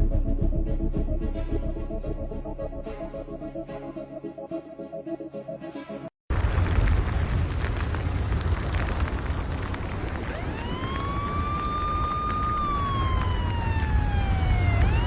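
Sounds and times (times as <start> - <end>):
deep steady rumble: 6.3 - 15.0
siren wailing: 10.2 - 15.0.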